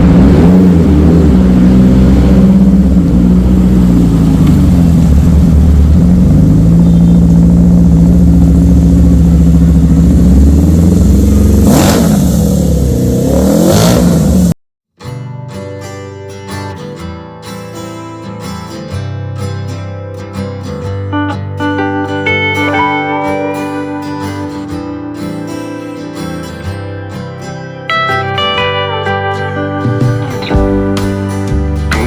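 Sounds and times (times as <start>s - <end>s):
motorcycle engine idling and revving: 0.0s - 14.6s
acoustic guitar music: 15.0s - 32.0s.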